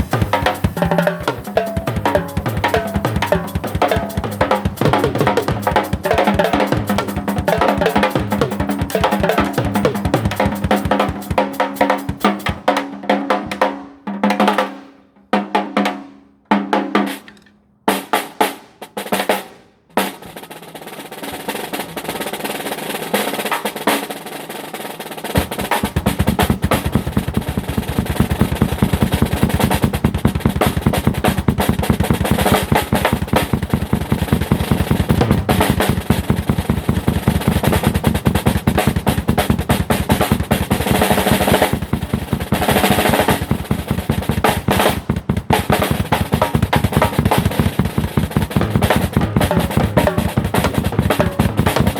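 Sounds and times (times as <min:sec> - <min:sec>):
drum kit with snare rolls: 0:00.0 - 0:51.9
deep bass drum: 0:48.4 - 0:51.9.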